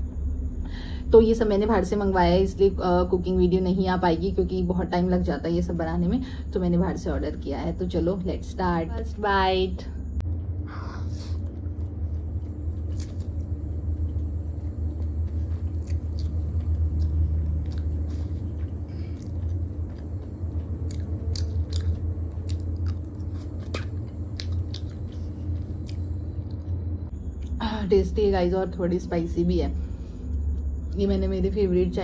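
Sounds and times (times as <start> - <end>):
steady low hum: 0.0 - 32.0
person chewing food: 11.0 - 27.6.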